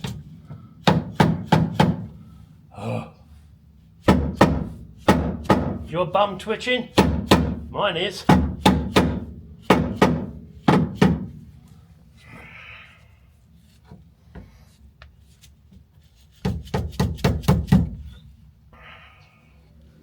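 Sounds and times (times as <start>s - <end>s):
hammer tapping metal tabs: 7.0s - 7.7s, 8.3s - 11.3s, 16.4s - 18.2s.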